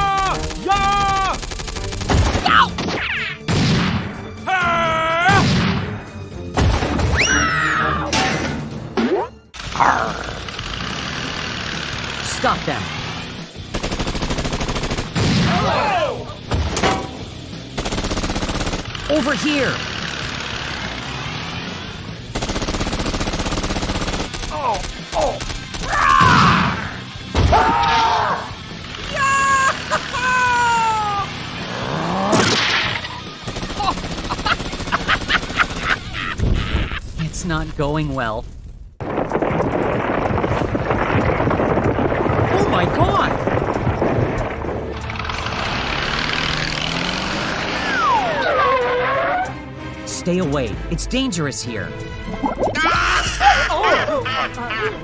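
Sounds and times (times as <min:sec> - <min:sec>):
background music: 0:00.0 - 0:38.4, 0:42.5 - 0:55.0
cartoon gliding cries: 0:07.2 - 0:08.1, 0:27.6 - 0:37.0, 0:47.8 - 0:49.6, 0:52.7 - 0:55.0
squeaky sliding sounds: 0:47.8 - 0:49.6.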